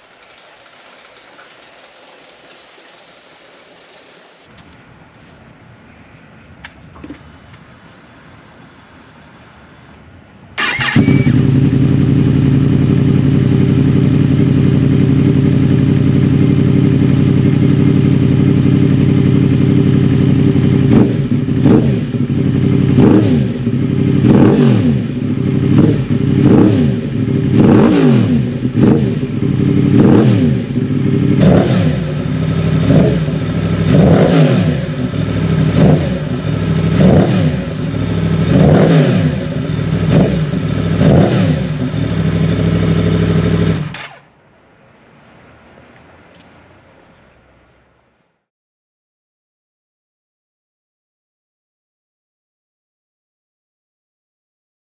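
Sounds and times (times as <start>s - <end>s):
motorcycle engine idling and revving: 10.6s - 44.3s.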